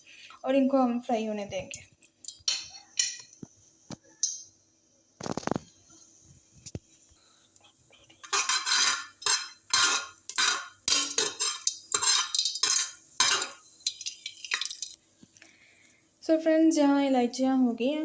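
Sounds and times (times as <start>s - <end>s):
pods frying in oil: 5.2s - 18.0s
spoon scraping a pan: 8.1s - 15.0s.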